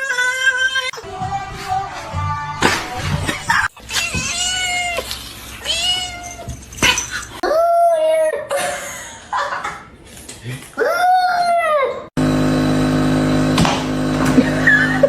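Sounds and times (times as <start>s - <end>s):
cat meowing: 3.9s - 7.0s.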